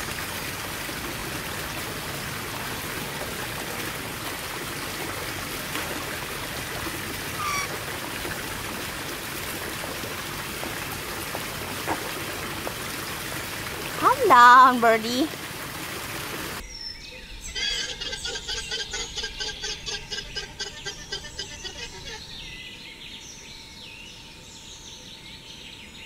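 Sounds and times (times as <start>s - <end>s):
water trickling: 0.0s - 16.6s.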